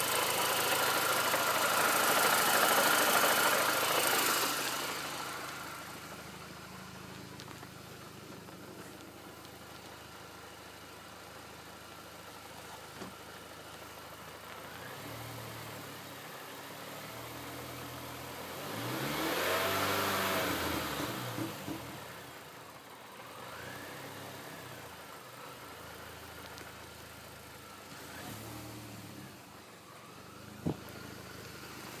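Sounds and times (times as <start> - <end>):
car engine idling with knocking: 0.0 - 15.1, 20.9 - 28.4, 29.5 - 32.0.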